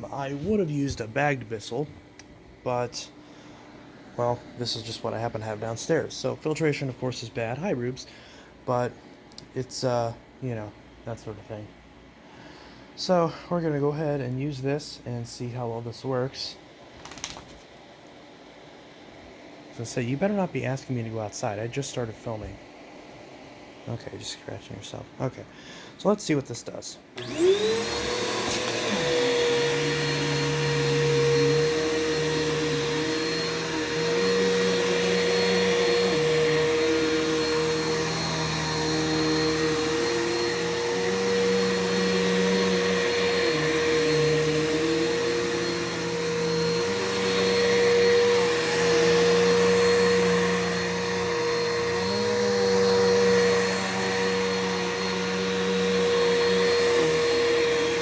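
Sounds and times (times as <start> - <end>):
vacuum cleaner running: 0.0 - 8.9, 27.2 - 58.0.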